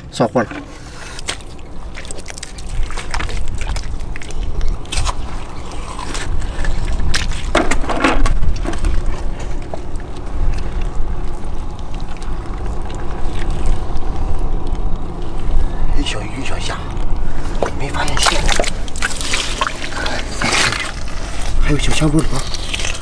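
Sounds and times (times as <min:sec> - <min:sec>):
wind rumbling on microphone: 0:00.0 - 0:23.0
knocks and scrapes: 0:00.2 - 0:01.6, 0:06.1 - 0:09.9.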